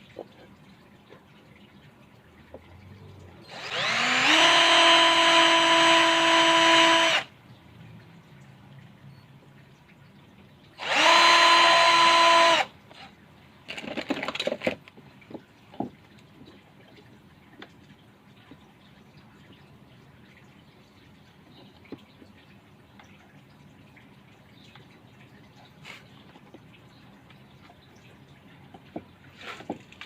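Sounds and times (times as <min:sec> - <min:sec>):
electric drill lathe whining: 0:03.5 - 0:07.3, 0:10.8 - 0:12.7.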